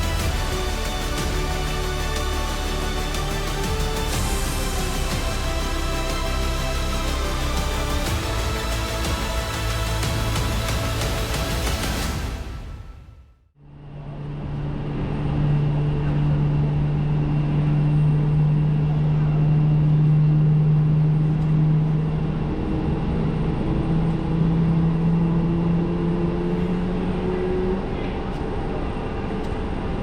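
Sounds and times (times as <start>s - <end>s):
aircraft engines humming: 0.0s - 12.6s, 13.8s - 30.0s
rushing noise: 0.0s - 13.1s.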